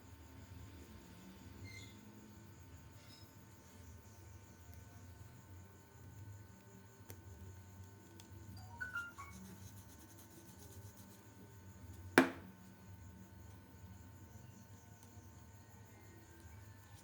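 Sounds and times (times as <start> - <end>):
sharp knock: 12.2 - 12.5.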